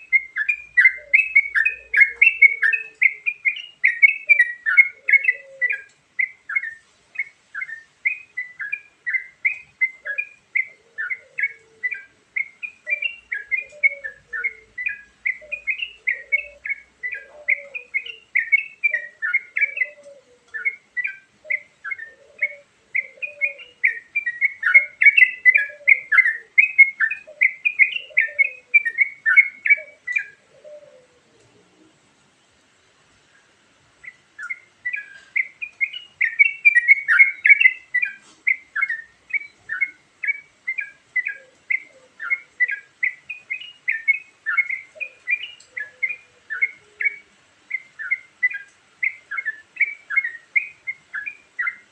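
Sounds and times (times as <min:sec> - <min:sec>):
faint low bird call: 0:00.0 - 0:32.0
bird chirping song: 0:00.0 - 0:51.9.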